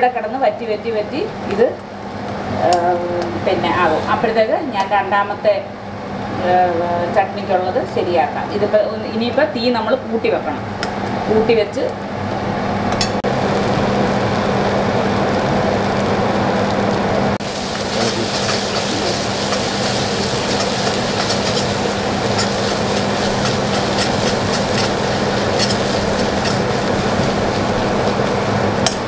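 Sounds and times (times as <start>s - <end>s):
steady low hum: 0.0s - 29.0s
chutney sizzling in hot oil: 13.2s - 29.0s.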